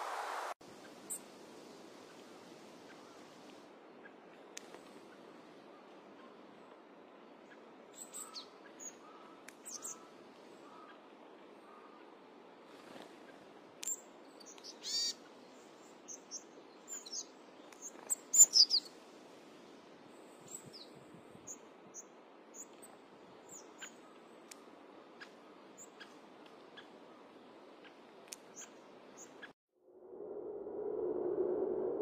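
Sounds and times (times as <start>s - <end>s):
faint background hiss: 0.0s - 29.6s
small birds chirping: 2.0s - 19.0s, 19.6s - 29.6s
faint clicks: 4.3s - 5.1s, 9.4s - 9.7s, 24.1s - 25.4s, 27.8s - 28.8s.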